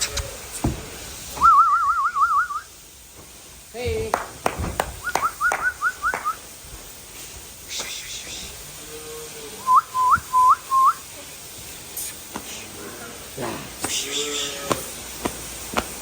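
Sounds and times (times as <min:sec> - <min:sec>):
person whistling: 0:01.4 - 0:02.7, 0:05.0 - 0:06.4, 0:09.6 - 0:11.0
sharp knocks: 0:04.0 - 0:05.0.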